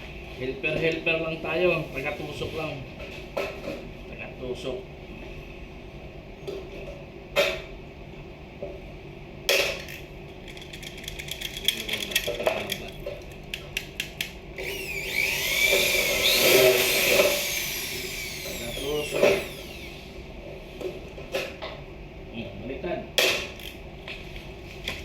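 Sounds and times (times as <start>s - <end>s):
power drill whining: 14.6s - 20.1s.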